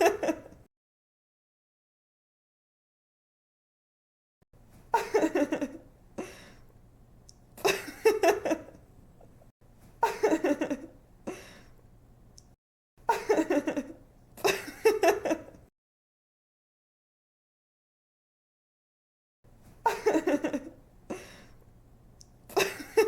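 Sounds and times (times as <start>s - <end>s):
young woman giggling: 4.9s - 5.8s, 10.0s - 11.5s, 13.1s - 15.6s, 19.8s - 21.2s, 22.5s - 23.0s
woman breathing: 6.2s - 6.7s, 11.3s - 11.8s, 21.1s - 21.6s.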